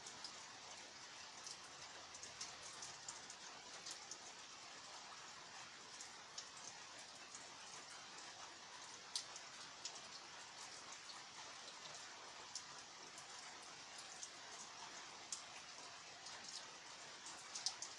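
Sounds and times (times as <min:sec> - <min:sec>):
steady rain: 0:00.0 - 0:17.9.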